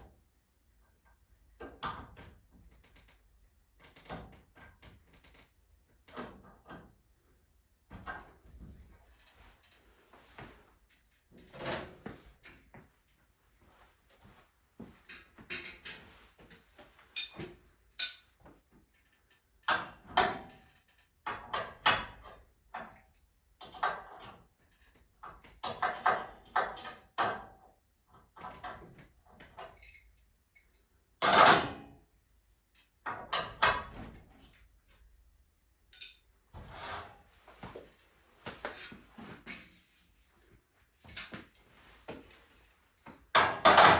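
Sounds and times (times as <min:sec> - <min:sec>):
tools and metal clanking: 0:15.0 - 0:18.4, 0:35.9 - 0:43.9.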